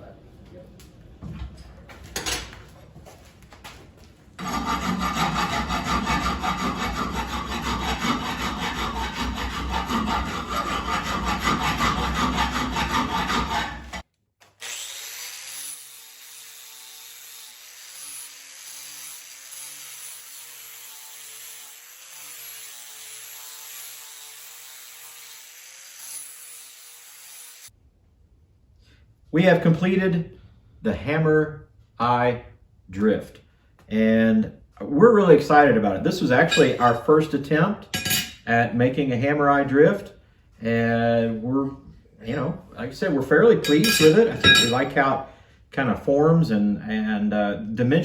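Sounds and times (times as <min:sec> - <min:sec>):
abrasive power tool rasping steel: 0:04.4 - 0:27.7, 0:36.4 - 0:36.9, 0:43.6 - 0:45.1.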